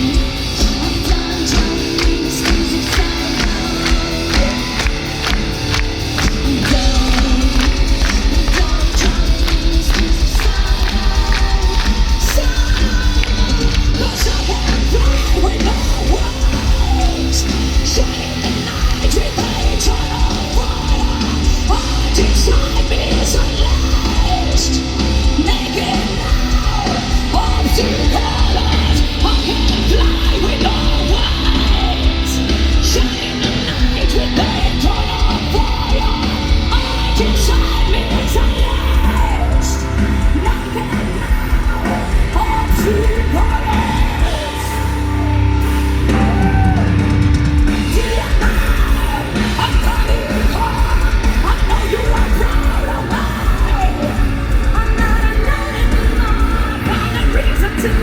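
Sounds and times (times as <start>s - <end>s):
pounding drums: 0.0s - 44.6s
distorted guitars: 0.0s - 58.0s
metal band playing live: 0.0s - 58.0s
singer screaming harsh vocals: 40.4s - 58.0s.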